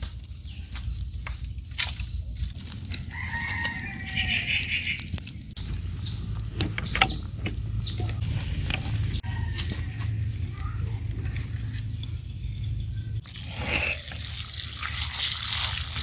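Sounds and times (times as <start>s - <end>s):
rooster crowing: 3.0s - 5.0s.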